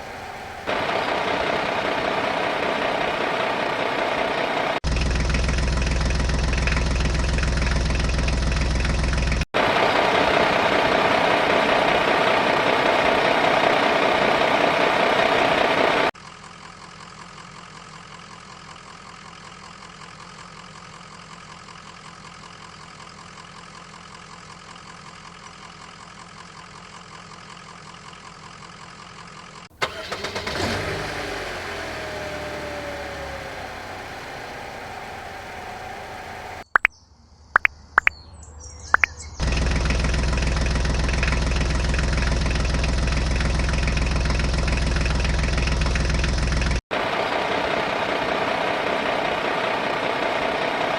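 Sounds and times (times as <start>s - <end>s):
motor running steadily: 30.1s - 36.7s.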